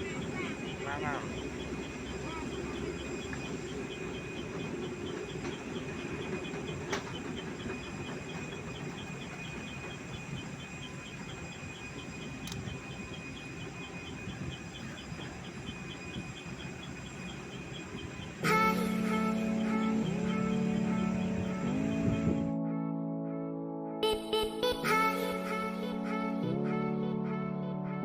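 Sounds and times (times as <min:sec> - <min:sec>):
faint high chirp: 0:00.0 - 0:22.5
steady low rumble: 0:17.8 - 0:22.7.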